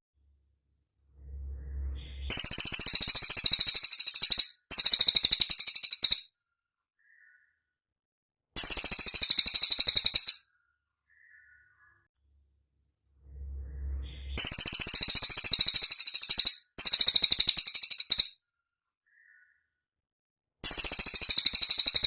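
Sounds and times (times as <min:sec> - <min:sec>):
low rumble: 0:00.2 - 0:03.1, 0:12.2 - 0:15.2
songbird high-pitched trills: 0:01.3 - 0:06.3, 0:08.6 - 0:10.4, 0:13.5 - 0:18.4, 0:20.6 - 0:22.0
faint bird calls: 0:07.0 - 0:07.8, 0:08.7 - 0:12.1, 0:19.0 - 0:19.8.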